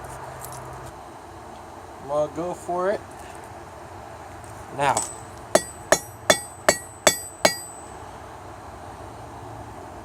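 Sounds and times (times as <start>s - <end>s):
hammer ringing on metal bar: 4.9s - 7.9s.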